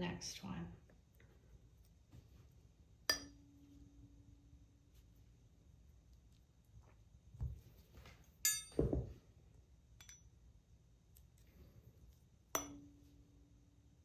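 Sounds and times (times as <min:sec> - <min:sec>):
metallic clink: 0:08.4 - 0:09.0, 0:10.0 - 0:10.3.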